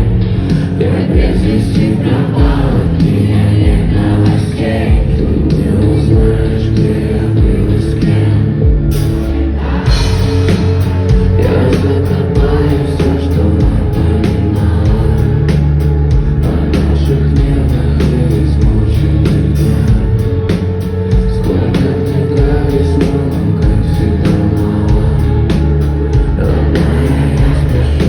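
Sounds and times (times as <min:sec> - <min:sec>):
electric guitar: 0:00.0 - 0:28.0
heavy bass: 0:00.0 - 0:28.0
live rock band playing: 0:00.0 - 0:28.0
person singing: 0:00.0 - 0:28.0
drum beat: 0:09.9 - 0:16.7.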